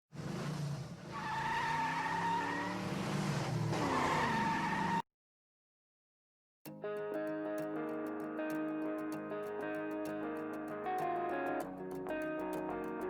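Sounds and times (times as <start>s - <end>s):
car engine: 0.2s - 4.9s
car tyres squealing: 0.2s - 5.0s.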